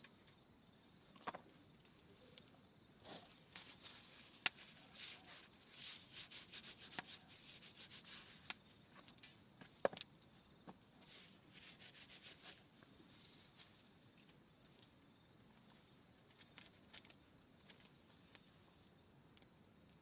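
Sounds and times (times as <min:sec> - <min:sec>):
soft rustling and rubbing: 0:03.0 - 0:09.4, 0:11.0 - 0:13.9.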